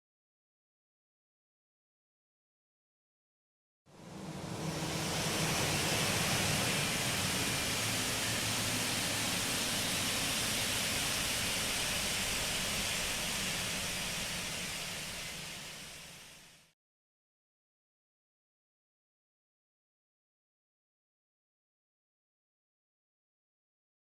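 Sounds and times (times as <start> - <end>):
jet engine roar: 3.9 - 16.7.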